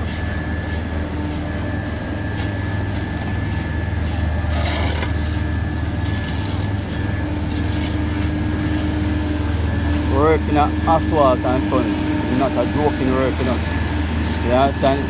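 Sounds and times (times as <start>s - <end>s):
faint steady whine: 0.0s - 15.0s
heavy machinery engine hum: 0.0s - 15.0s.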